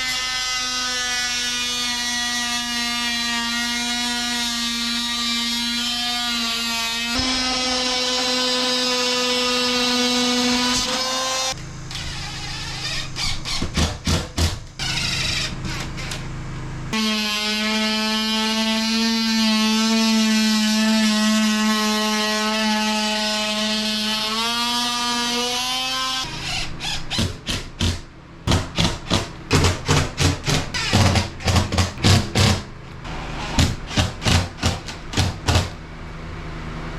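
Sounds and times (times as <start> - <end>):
power tool motor running: 6.3 - 27.8
sharp knocks: 27.1 - 32.7.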